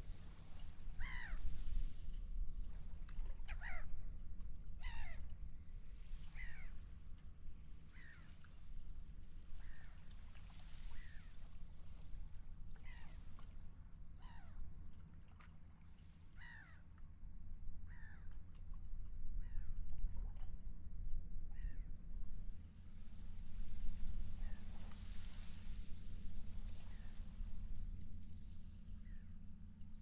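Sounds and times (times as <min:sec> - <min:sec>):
low rumble: 0:17.2 - 0:30.0.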